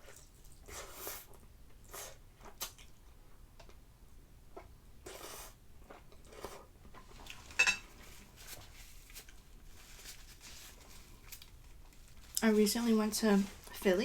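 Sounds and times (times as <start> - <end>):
person chewing food: 0.0 - 3.8.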